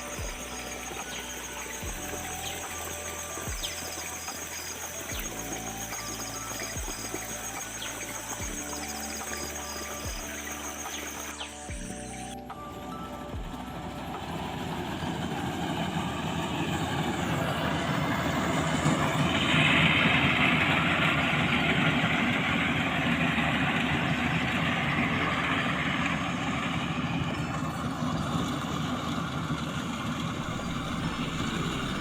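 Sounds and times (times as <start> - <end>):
combine harvester engine running: 30.4 - 32.0.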